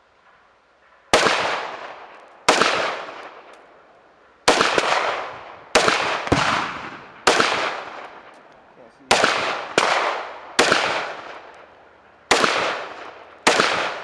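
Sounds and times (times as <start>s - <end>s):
gunshots echoing: 1.1s - 3.6s, 4.4s - 11.7s, 12.3s - 14.0s.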